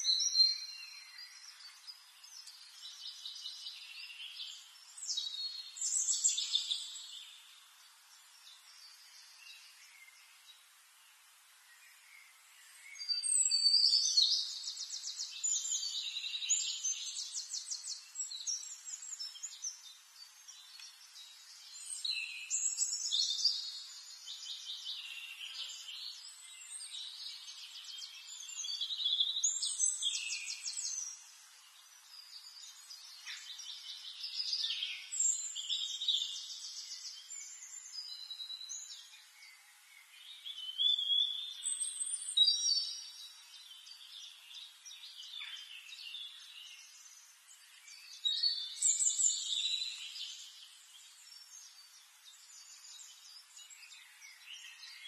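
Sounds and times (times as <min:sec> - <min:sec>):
faint steady hiss: 0:00.0 - 0:55.0.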